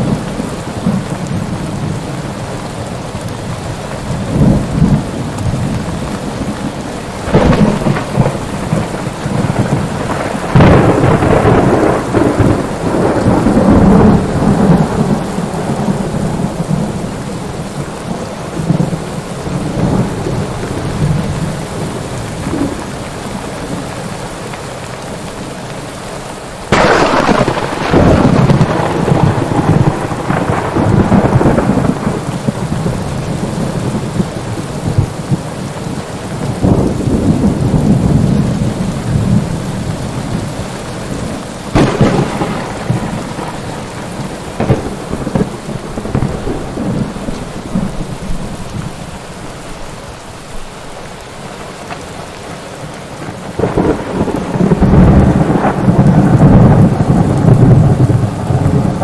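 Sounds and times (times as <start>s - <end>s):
thunder rumbling and cracking: 0.0s - 24.0s, 26.7s - 50.6s, 53.0s - 59.0s
heavy rain: 0.0s - 59.0s.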